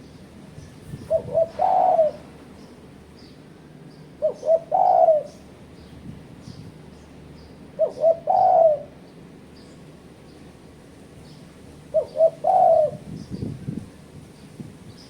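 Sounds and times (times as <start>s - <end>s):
dove cooing: 0.9s - 2.4s, 4.2s - 5.5s, 7.7s - 9.0s, 11.9s - 13.2s.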